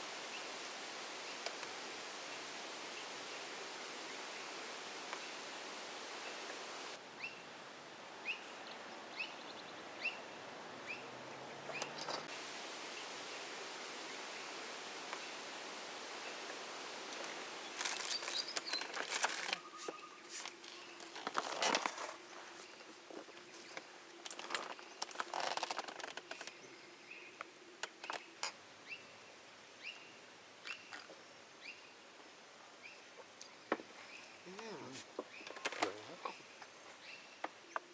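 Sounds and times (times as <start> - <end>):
bird chirping: 8.2 - 12.3, 17.5 - 21.2, 32.8 - 37.9
rustling and crackling: 16.4 - 26.6.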